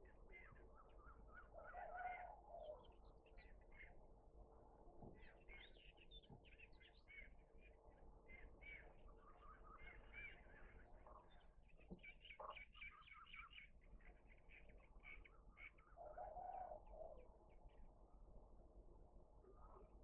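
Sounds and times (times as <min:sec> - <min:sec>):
small birds chirping: 0:05.2 - 0:16.1.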